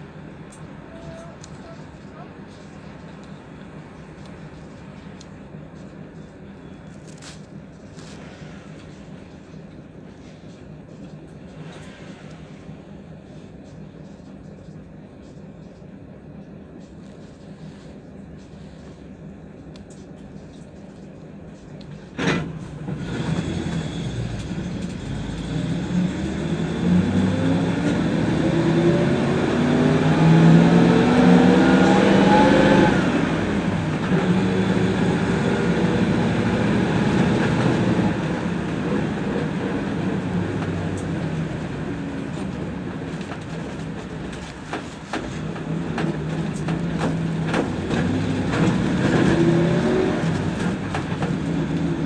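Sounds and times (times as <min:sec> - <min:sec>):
bus engine revving: 0:22.0 - 0:52.0.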